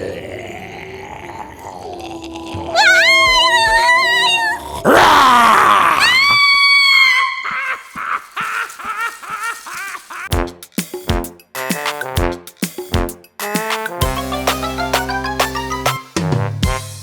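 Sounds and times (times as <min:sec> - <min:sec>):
high wavering cartoon cry: 0:02.7 - 0:08.8
quick rhythmic ticks: 0:07.8 - 0:16.0.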